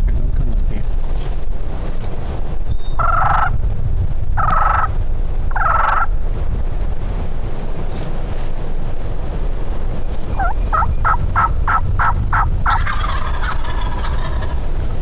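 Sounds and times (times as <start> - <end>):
low wind rumble: 0.0 - 15.0
turkey rattling gobble: 3.0 - 3.5, 4.4 - 4.9, 5.5 - 6.1, 10.4 - 14.6
turkey yelps: 3.0 - 3.5, 4.4 - 4.9, 5.5 - 6.1, 10.4 - 14.6.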